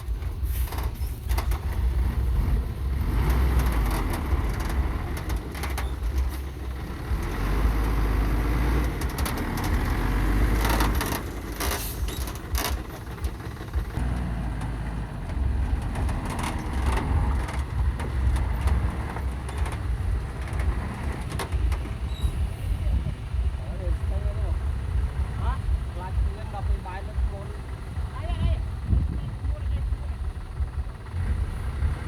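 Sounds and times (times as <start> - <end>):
sharp knocks and clanks: 0.0 - 7.4, 8.8 - 22.6
construction machinery rumbling: 0.0 - 32.0.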